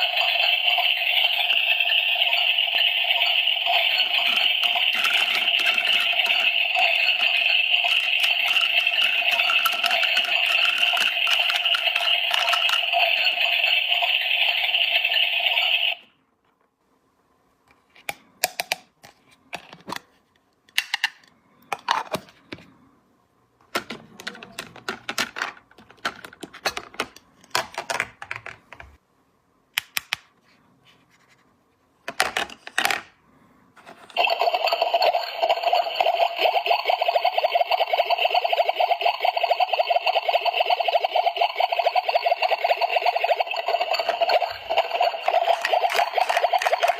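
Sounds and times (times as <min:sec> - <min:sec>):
plastic toy pieces clicking: 0:00.0 - 0:14.0, 0:23.7 - 0:28.6, 0:39.6 - 0:46.9
loud steady tone: 0:00.0 - 0:14.3, 0:34.2 - 0:46.9.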